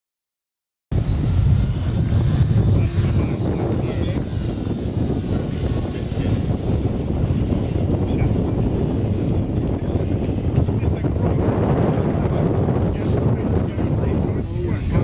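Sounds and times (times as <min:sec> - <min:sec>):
wind rumble: 0:00.9 - 0:15.0
model plane motor whine: 0:01.0 - 0:08.9.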